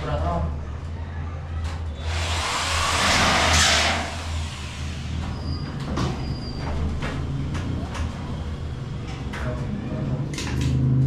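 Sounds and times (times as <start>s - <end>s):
power tool hissing crackle: 2.1s - 5.4s.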